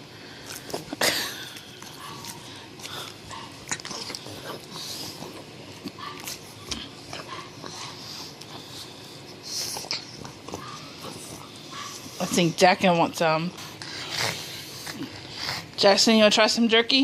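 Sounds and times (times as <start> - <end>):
dog chewing with wet chomps: 0.0 - 12.9.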